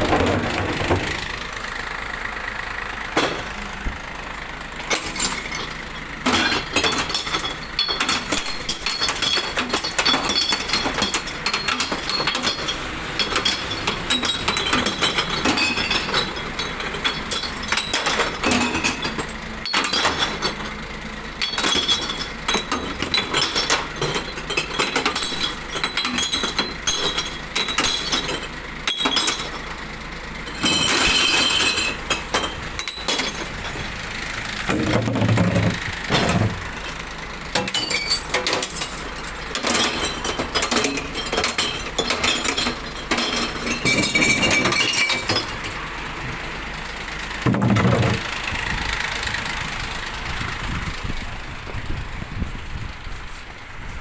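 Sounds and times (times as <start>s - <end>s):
glass bottles clinking and breaking: 4.9s - 20.8s, 21.4s - 29.8s, 30.5s - 33.9s, 34.6s - 37.0s, 37.6s - 45.9s, 47.4s - 48.2s.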